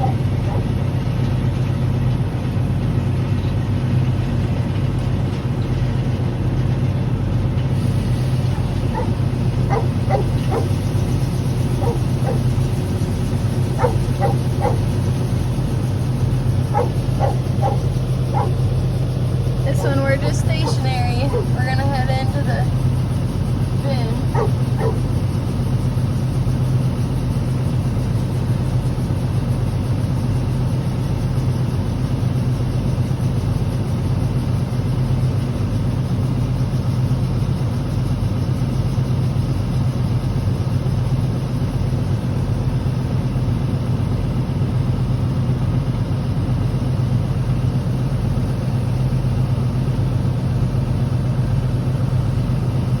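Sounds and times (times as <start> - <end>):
tractor diesel engine droning: 0.0 - 53.0.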